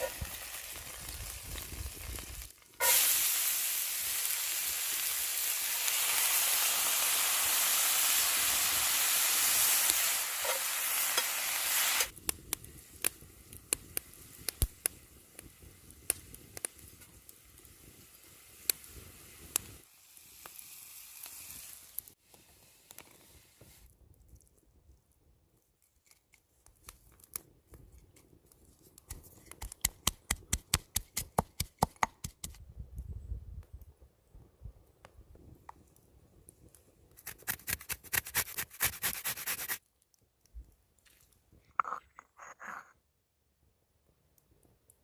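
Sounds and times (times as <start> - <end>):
steak sizzling in a hot pan: 2.8 - 12.1
sharp clicks and pops: 25.8 - 33.1.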